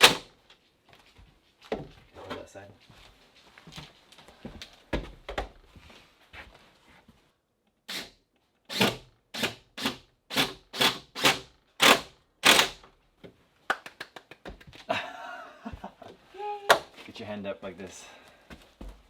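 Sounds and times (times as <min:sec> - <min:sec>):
hammer driving nail into wood: 0:08.7 - 0:12.8.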